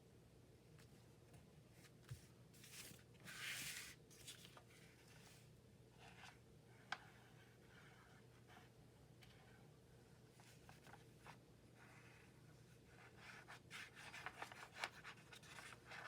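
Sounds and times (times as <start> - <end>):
paper rustling: 1.8 - 5.4, 13.2 - 16.0.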